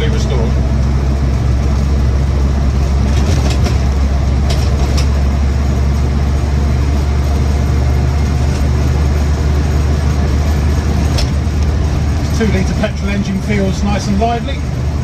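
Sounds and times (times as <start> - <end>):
car engine droning inside cab: 0.0 - 15.0
light rattling clicks: 2.8 - 5.4, 6.8 - 14.1.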